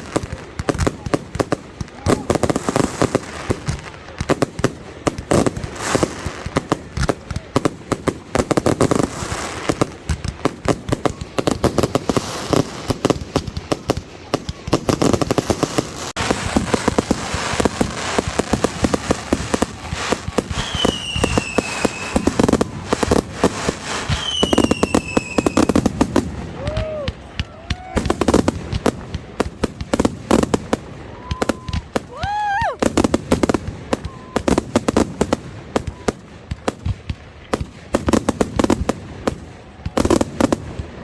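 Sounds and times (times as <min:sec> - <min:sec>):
fireworks bangs and crackling pops: 0:00.0 - 0:41.0
whistling firework shells: 0:16.2 - 0:36.2.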